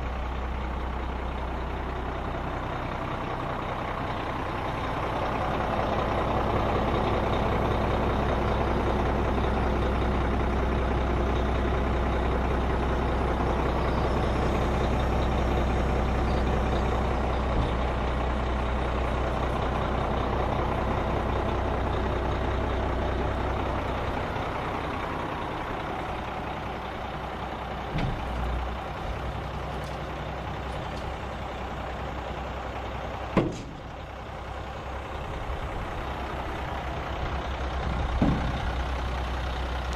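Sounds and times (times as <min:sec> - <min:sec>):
diesel truck engine running: 0:00.0 - 0:39.9
low thump: 0:38.2 - 0:38.7.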